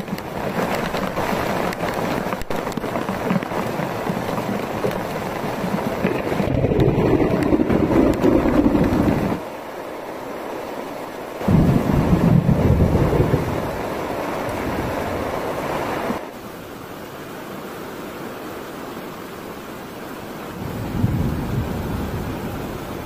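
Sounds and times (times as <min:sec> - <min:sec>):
wind buffeting the microphone: 0:00.0 - 0:09.4
runoff pouring and splashing: 0:00.0 - 0:09.5
rain pelting a tarp: 0:00.0 - 0:23.0.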